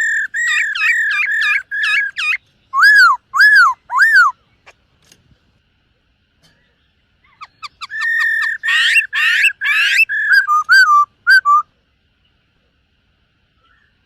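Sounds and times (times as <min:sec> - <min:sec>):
laughingthrush whistling and warbling: 0:00.0 - 0:04.4, 0:07.4 - 0:11.7.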